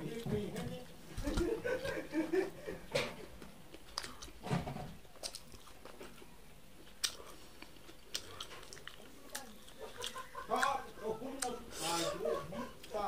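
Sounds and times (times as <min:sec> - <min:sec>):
crunchy chewing: 0:03.3 - 0:13.0.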